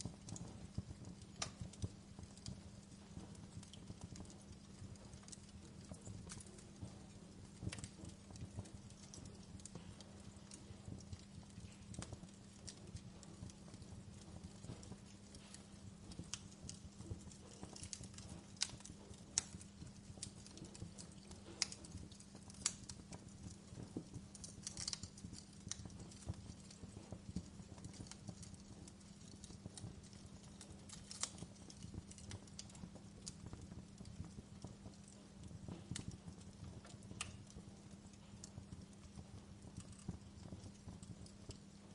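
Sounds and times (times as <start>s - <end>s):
fireplace crackling and popping: 0.0s - 41.9s.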